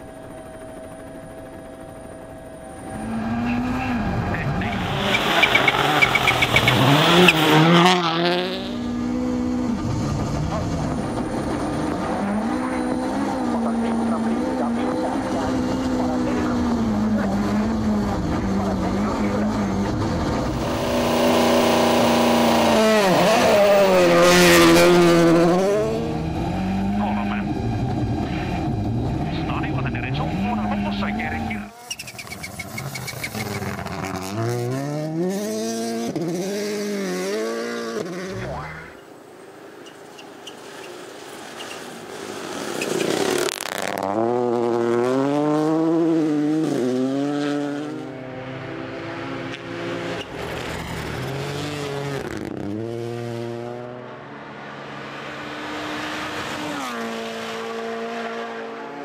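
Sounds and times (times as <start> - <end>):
rally car engine revving high: 2.8 - 39.0, 41.8 - 59.0.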